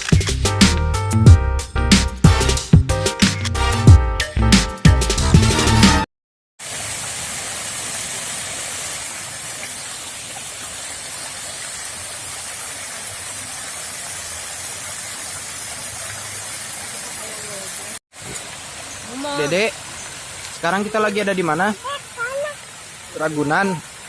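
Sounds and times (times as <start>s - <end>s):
background music: 0.0s - 6.1s.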